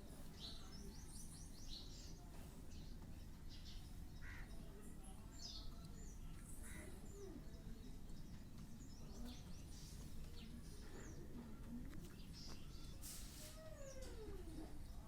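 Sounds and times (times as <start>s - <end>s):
faint bird chirps: 3.4s - 15.0s.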